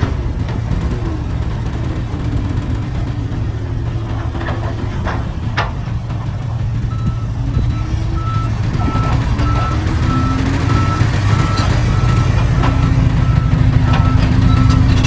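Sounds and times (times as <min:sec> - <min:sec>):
diesel construction machinery rumbling: 0:00.0 - 0:15.0
reversing alarm beeping: 0:06.9 - 0:15.0.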